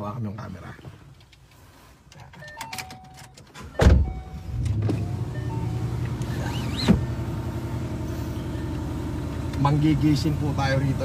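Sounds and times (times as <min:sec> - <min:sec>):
car engine starting and revving: 0:03.7 - 0:11.0
car engine idling: 0:04.0 - 0:11.0.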